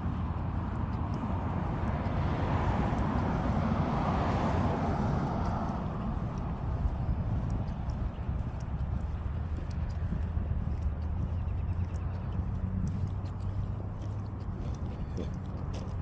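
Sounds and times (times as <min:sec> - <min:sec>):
constant low rumble: 0:00.0 - 0:16.0
vehicle passing: 0:00.0 - 0:16.0.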